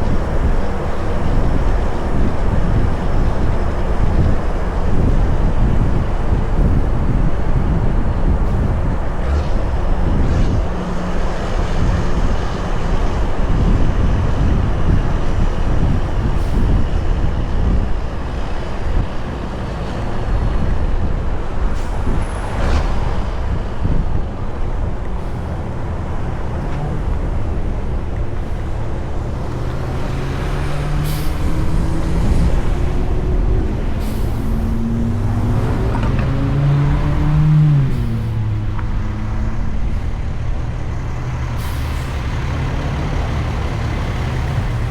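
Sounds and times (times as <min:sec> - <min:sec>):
road rumble: 0:00.0 - 0:44.9
truck diesel engine under load: 0:00.0 - 0:44.9
short air hisses: 0:31.0 - 0:31.4.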